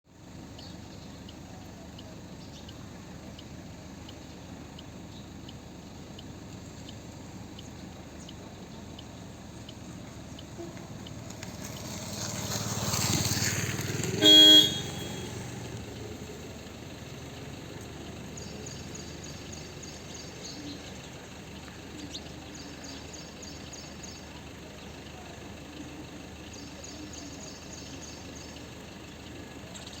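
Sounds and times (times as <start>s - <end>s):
vehicle passing: 9.4s - 20.4s
car horn toot: 14.1s - 15.7s
faint high chirps: 14.2s - 15.7s
high twittering: 14.2s - 15.7s.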